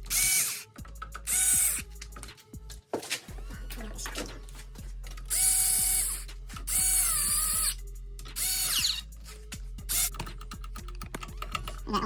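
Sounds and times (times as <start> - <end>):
impact gun whirring and ratcheting: 0.0 - 2.3, 5.1 - 9.0, 9.8 - 11.9.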